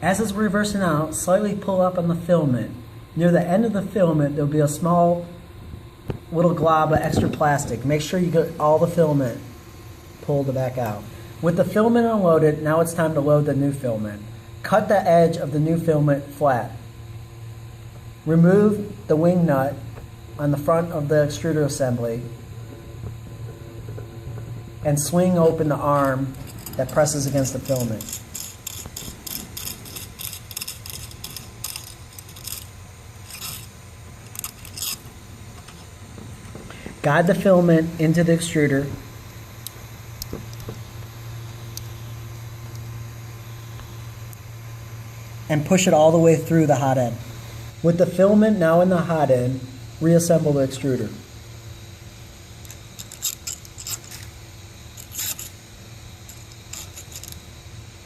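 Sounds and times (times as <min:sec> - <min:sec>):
steady low hum: 0:00.0 - 0:58.0
parts scraping: 0:19.9 - 0:44.3, 0:52.6 - 0:57.6.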